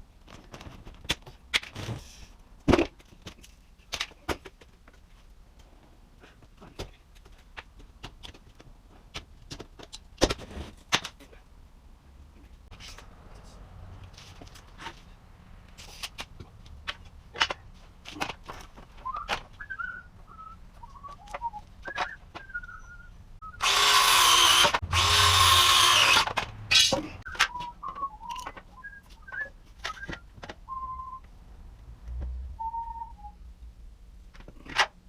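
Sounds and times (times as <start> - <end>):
man whistling: 19.0 - 23.6, 27.3 - 31.2, 32.6 - 33.4
knocks and clicks of tools: 23.6 - 28.7.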